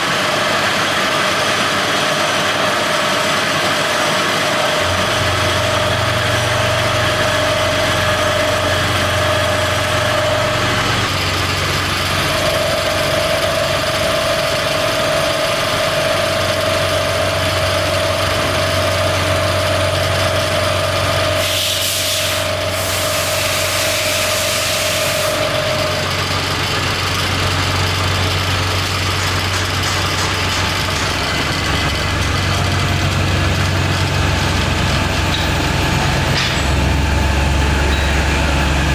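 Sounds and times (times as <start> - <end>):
machinery hum and whine: 0.0 - 38.9
loud hiss: 21.3 - 25.9.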